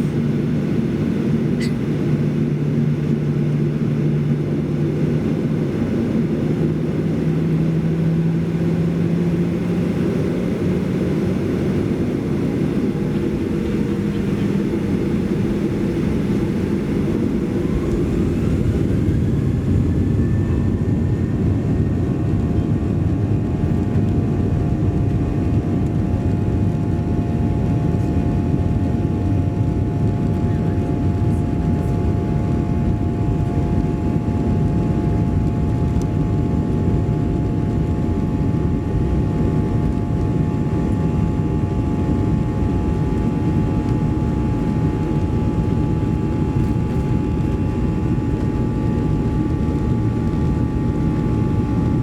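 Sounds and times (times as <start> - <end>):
jet engine rumble in cabin: 0.0 - 52.0
jet engine whine: 0.0 - 52.0.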